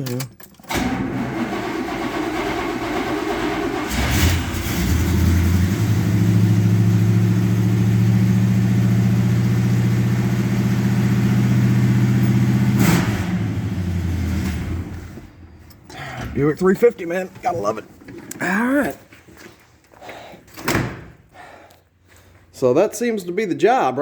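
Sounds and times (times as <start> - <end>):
car engine starting and running: 0.0 - 18.9.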